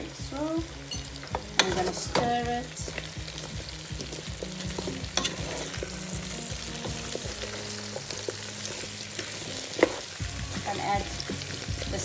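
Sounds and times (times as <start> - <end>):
potatoes and onions sizzling in oil: 0.0 - 12.0
utensil scraping and knocking pot: 2.9 - 12.0.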